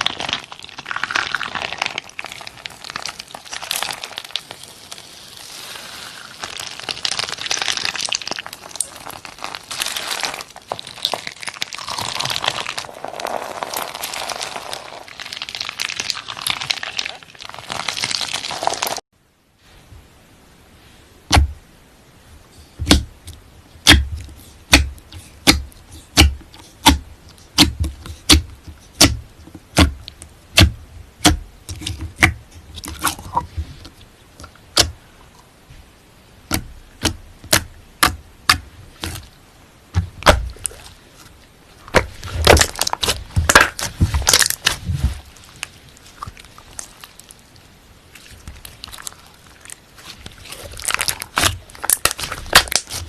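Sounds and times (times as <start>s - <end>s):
slime crackling: 0.0s - 19.0s, 36.5s - 53.0s
slime popping: 0.0s - 19.0s, 39.9s - 41.0s, 41.9s - 47.4s, 48.2s - 53.0s.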